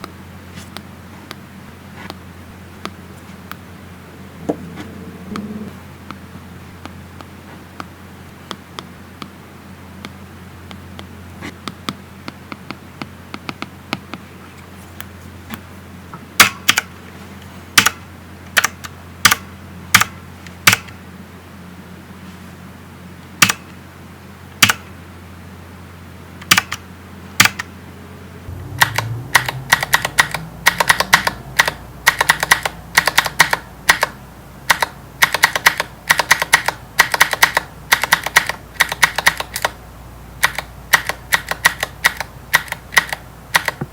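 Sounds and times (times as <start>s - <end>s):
low steady hum: 0.0s - 43.9s
taps on a tablet screen: 10.0s - 14.2s, 28.8s - 34.1s.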